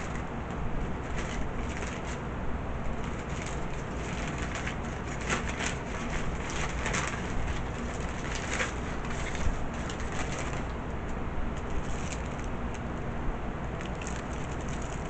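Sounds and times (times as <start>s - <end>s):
steady low hum: 0.0s - 15.0s
chewing and crunching fried chicken: 11.6s - 12.9s, 13.7s - 15.0s.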